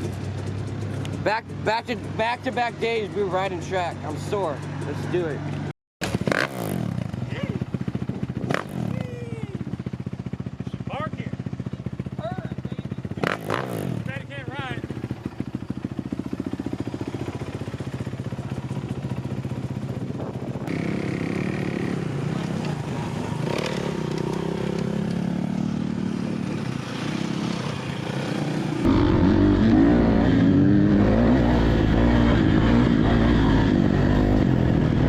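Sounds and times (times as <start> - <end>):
dirt bike engine idling: 0.0 - 5.4, 7.0 - 29.5
dirt bike engine revving: 6.0 - 9.1, 10.9 - 19.6, 20.6 - 35.0.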